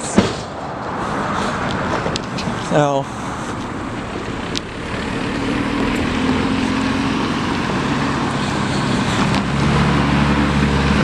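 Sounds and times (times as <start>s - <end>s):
road noise: 0.0s - 11.0s
vehicle engine droning: 0.8s - 11.0s
deep loud hum: 2.6s - 9.0s.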